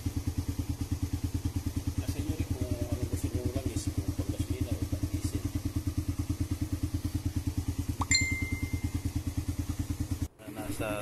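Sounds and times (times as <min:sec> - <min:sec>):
motorcycle engine idling: 0:00.0 - 0:11.0
brief high ping: 0:08.0 - 0:09.0.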